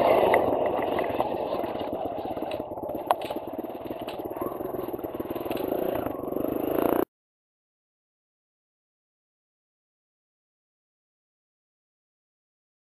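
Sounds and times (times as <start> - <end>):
dirt bike engine running: 0.0 - 7.1.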